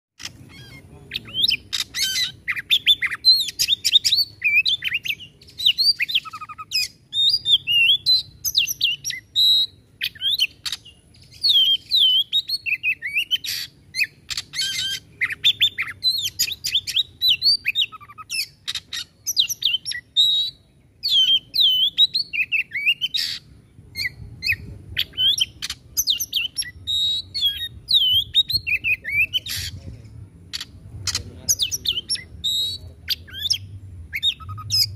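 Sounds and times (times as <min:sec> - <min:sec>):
bird harsh clicking notes: 0:00.2 - 0:02.4
bird singing whistled notes: 0:00.2 - 0:34.9.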